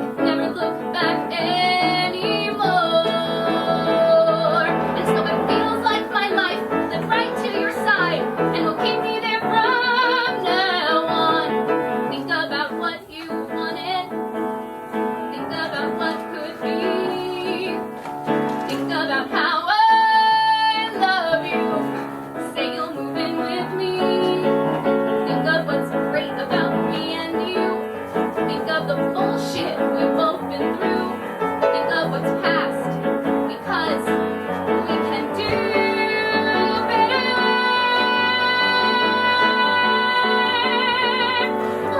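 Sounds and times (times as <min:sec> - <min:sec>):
woman singing: 0:00.0 - 0:14.4, 0:15.3 - 0:41.9
piano accompaniment: 0:00.0 - 0:41.9.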